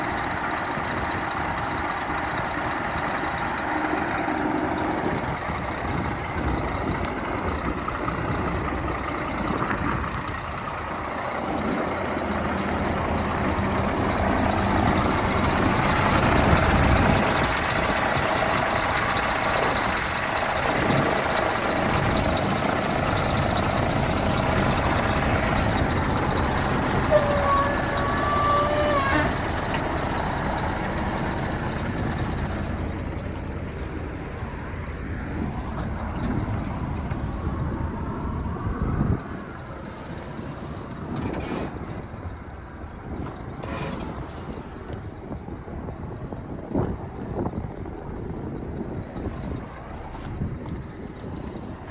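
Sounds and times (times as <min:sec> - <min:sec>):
truck diesel engine running: 0:00.0 - 0:51.9.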